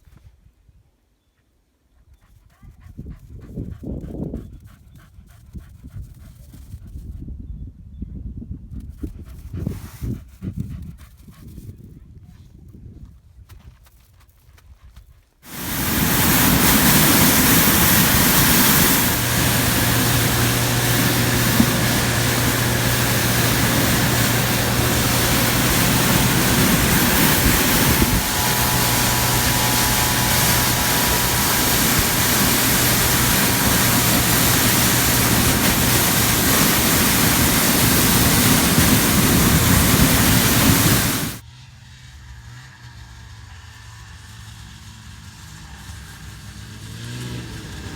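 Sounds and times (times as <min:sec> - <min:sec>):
wind rush on microphone: 0:02.8 - 0:13.3, 0:15.5 - 0:41.4
snowmobile engine hum: 0:15.5 - 0:41.4.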